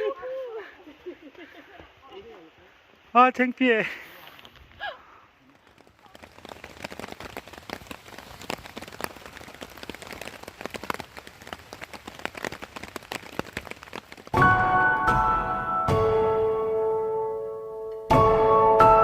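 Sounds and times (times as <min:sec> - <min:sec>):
patter of small taps and crackles: 0:05.5 - 0:14.4
music with bell-like tones: 0:14.4 - 0:19.0.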